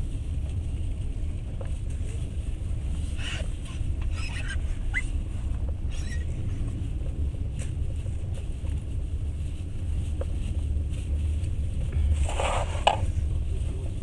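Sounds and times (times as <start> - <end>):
train wheels rumbling on rails: 0.0 - 14.0
high squeaks and creaks: 3.2 - 5.1, 5.9 - 6.3.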